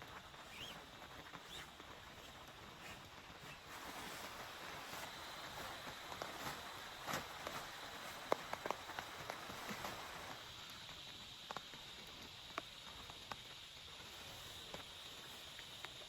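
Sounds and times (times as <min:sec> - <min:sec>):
steady rain hissing: 0:00.0 - 0:16.0.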